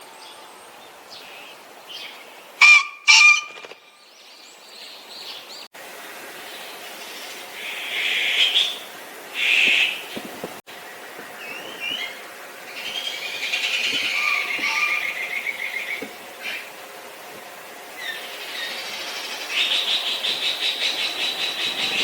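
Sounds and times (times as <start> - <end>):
raspy bird calls: 1.2 - 4.1, 7.6 - 10.2, 11.4 - 16.8, 17.9 - 22.0
pheasant crowing: 2.6 - 3.8, 13.1 - 16.7.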